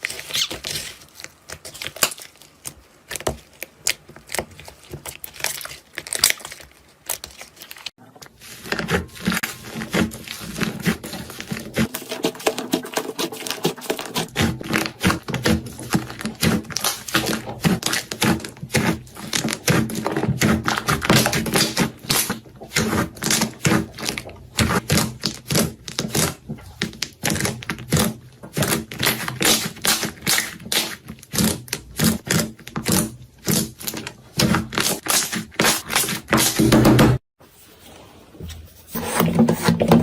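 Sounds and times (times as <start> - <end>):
slime crackling and popping: 1.2 - 7.9.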